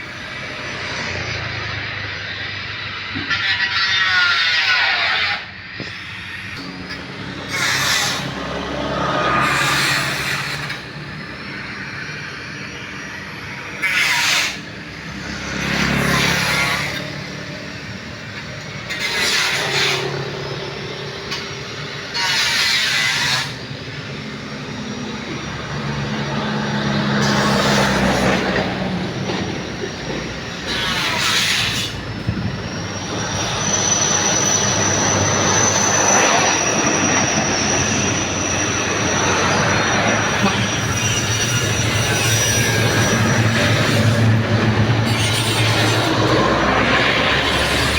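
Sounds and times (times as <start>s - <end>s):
diesel truck engines running: 0.0s - 4.1s, 5.4s - 47.9s
high steady squeal: 0.0s - 47.9s.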